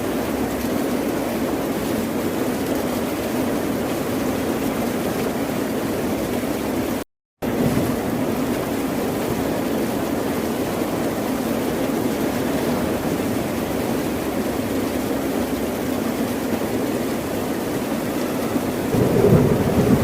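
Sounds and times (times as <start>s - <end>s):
ocean surf roar: 11.8s - 20.0s.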